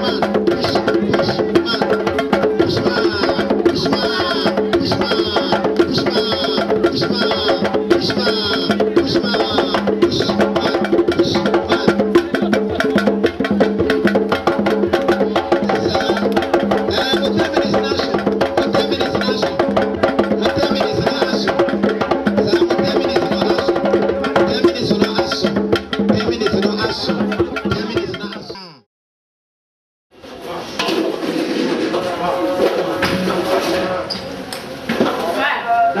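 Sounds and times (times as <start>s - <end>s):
fast drumming: 0.0s - 28.8s
pitched accompaniment: 0.0s - 28.9s.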